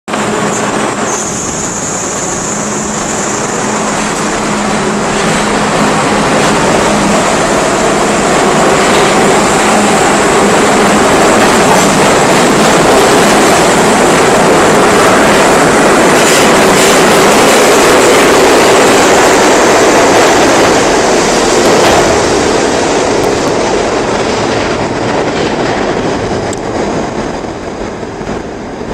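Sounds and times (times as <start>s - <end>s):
subway train motors and wheels: 0.1s - 28.9s
wheels clacking over rail joints: 3.7s - 18.9s.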